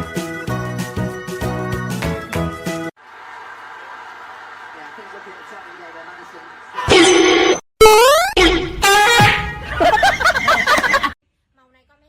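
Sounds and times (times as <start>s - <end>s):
upbeat background music: 0.0s - 2.9s.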